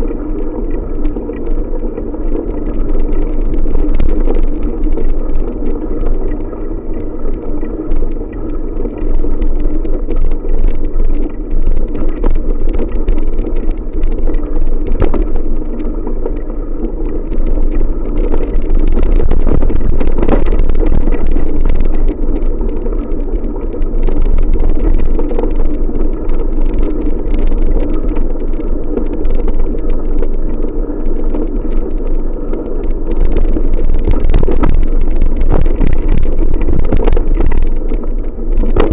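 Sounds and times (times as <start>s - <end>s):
wind buffeting microphone: 16.6s - 38.9s.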